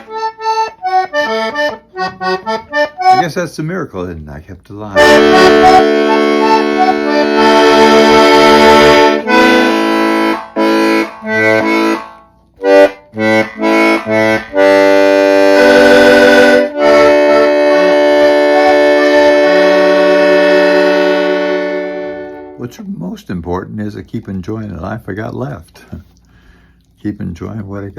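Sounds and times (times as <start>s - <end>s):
accordion playing chords: 0.0s - 3.8s, 4.9s - 22.8s.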